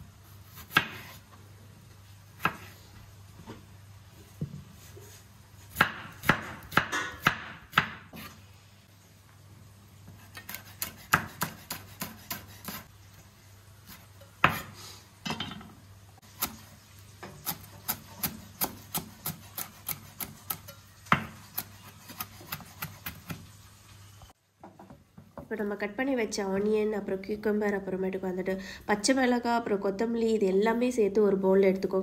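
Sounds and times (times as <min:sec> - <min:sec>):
knife chopping on wooden board: 0:00.5 - 0:01.2, 0:05.7 - 0:08.4, 0:10.1 - 0:12.8, 0:13.9 - 0:14.7, 0:17.4 - 0:23.4.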